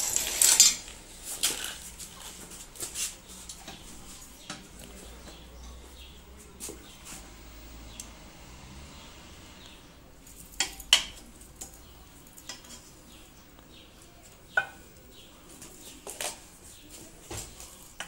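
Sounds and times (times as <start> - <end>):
tools and pipe fittings clinking: 0.0 - 1.8.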